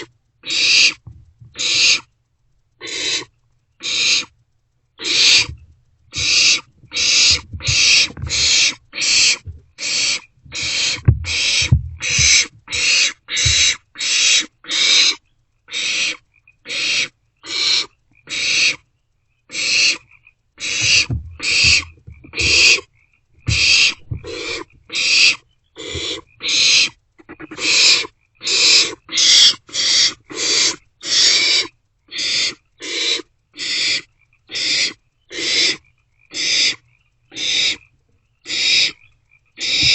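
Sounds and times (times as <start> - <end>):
owlets hissing begging calls: 0.0 - 1.0, 1.6 - 2.1, 2.8 - 4.3, 5.0 - 18.8, 19.5 - 20.0, 20.6 - 22.9, 23.5 - 37.8, 38.4 - 39.0, 39.6 - 39.9
low thumps: 1.0 - 1.6, 5.4 - 13.8, 20.7 - 22.8, 23.4 - 24.9.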